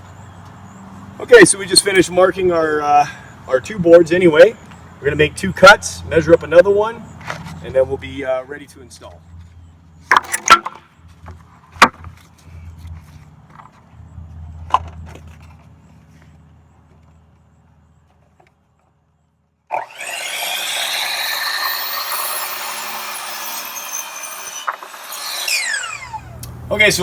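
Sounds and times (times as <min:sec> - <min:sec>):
power saw cutting wood: 0:19.7 - 0:27.0.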